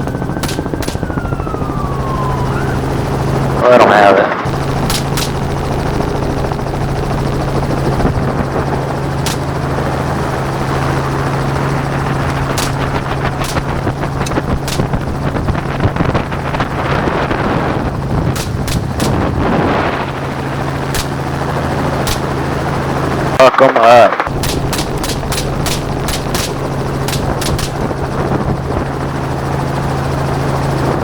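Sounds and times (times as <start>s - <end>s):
helicopter rotor and turbine: 0.0s - 31.0s
rifle shots: 0.4s - 1.2s, 4.8s - 5.7s, 9.2s - 9.8s, 12.5s - 15.2s, 18.3s - 19.7s, 20.9s - 21.3s, 22.0s - 22.5s, 24.3s - 28.0s.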